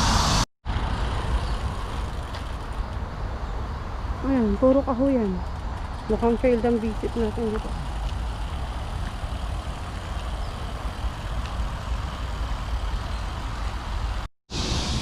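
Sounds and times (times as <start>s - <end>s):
hiss: 0.0s - 0.4s, 14.5s - 15.0s
low outdoor rumble: 0.0s - 15.0s.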